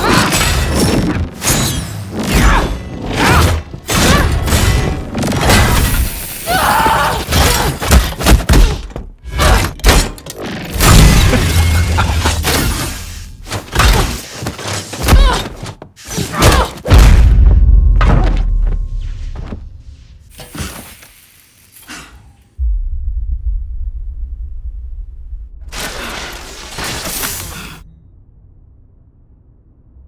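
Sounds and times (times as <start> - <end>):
heavy deep hits: 16.9 - 20.0, 22.6 - 25.8.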